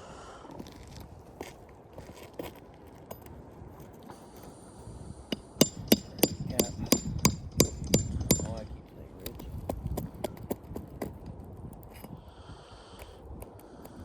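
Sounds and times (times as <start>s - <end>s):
hammer striking nails on roof: 5.3s - 8.6s.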